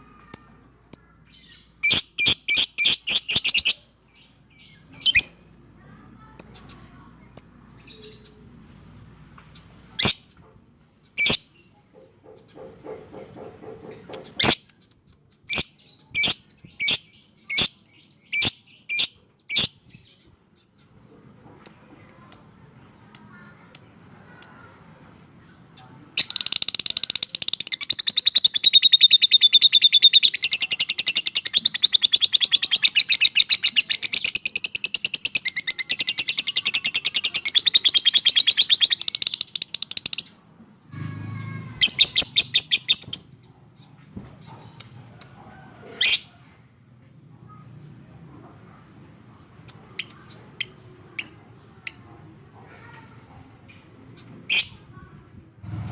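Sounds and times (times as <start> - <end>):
lovebird chirping and trilling: 0.3 - 5.5, 11.2 - 11.8, 15.5 - 20.1, 26.2 - 40.4, 41.7 - 43.5.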